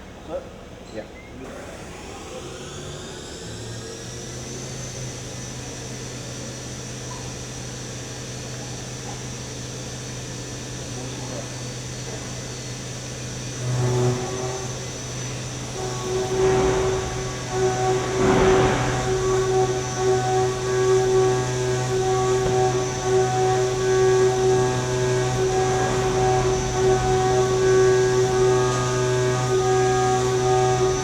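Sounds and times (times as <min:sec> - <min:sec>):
machine spindle hum and whine: 0:00.0 - 0:31.0
end mill cutting aluminum: 0:13.0 - 0:31.0.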